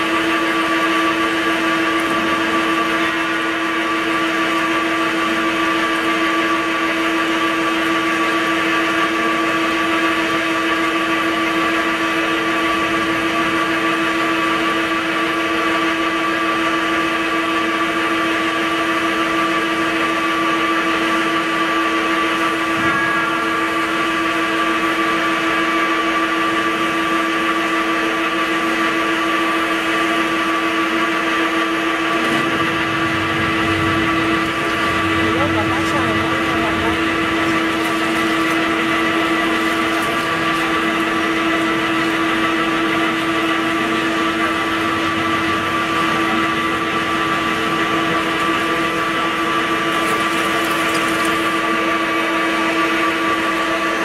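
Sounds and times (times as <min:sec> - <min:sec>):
drilling machine whine: 0:00.0 - 0:54.0.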